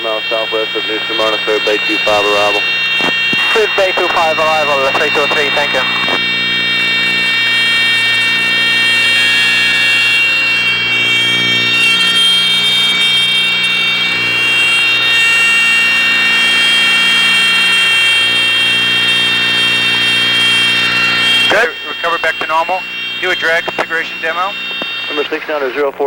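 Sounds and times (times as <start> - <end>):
aircraft engines droning: 0.0 - 26.0
stall warning horn: 5.4 - 21.9.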